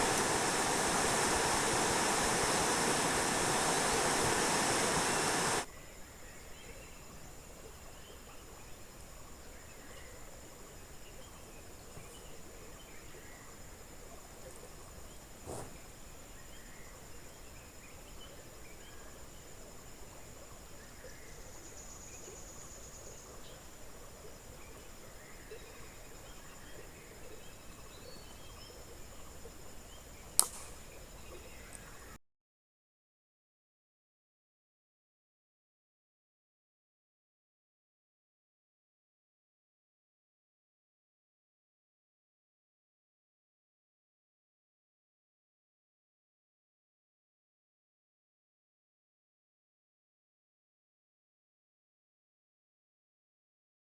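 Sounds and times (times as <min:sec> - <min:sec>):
river water rushing: 0:00.0 - 0:05.6.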